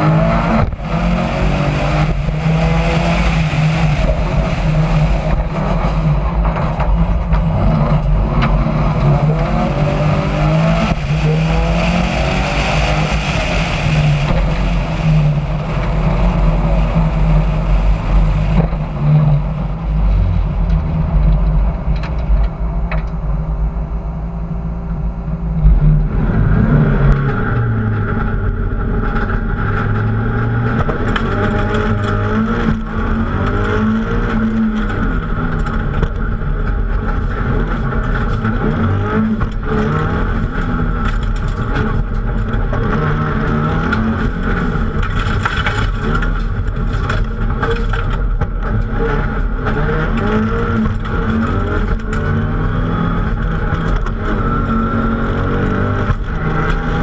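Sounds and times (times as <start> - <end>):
rally car engine accelerating: 0.0 - 57.0
road and wind noise: 0.0 - 57.0.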